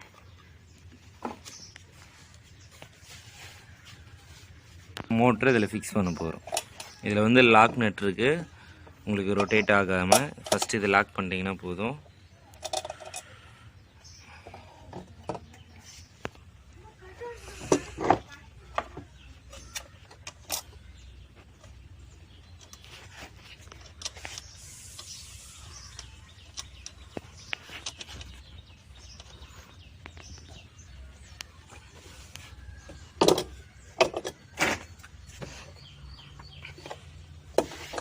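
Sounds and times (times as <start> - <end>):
metal parts and tools knocking: 9.2 - 11.0, 12.5 - 13.4, 33.0 - 34.8.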